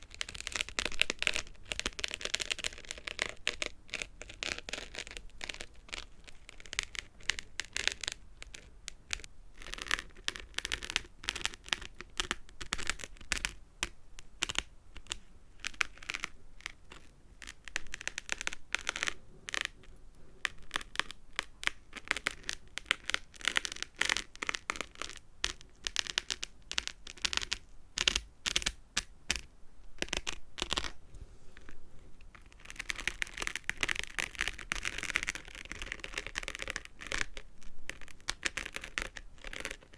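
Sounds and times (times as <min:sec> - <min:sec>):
scratchy rustle: 0:00.0 - 0:11.9, 0:30.1 - 0:39.9.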